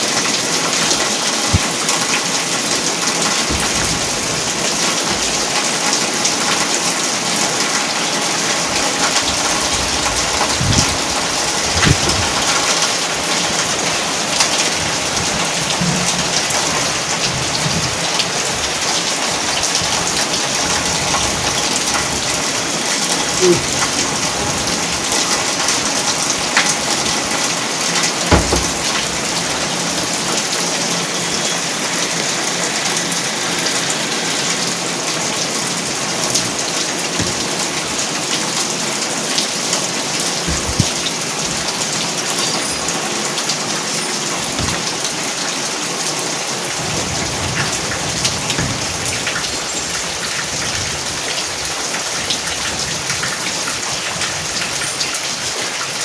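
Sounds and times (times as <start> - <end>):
rain splashing on surfaces: 0.0 - 56.0
dull knocks: 10.4 - 12.7, 28.3 - 29.2, 40.4 - 41.1, 44.5 - 45.0.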